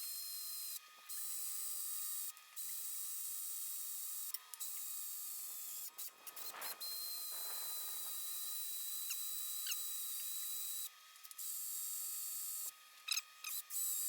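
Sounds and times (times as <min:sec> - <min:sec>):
faint short scrape: 0:06.0 - 0:08.3.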